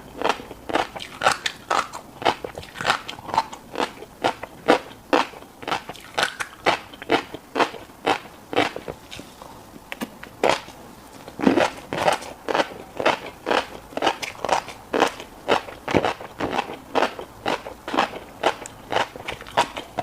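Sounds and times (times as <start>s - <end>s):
wet chewing: 0.2s - 20.0s.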